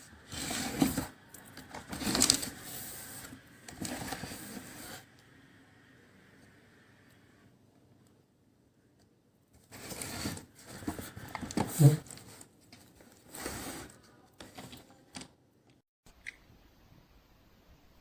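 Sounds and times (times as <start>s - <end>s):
plastic toy pieces rustling and clattering: 0.6s - 3.2s.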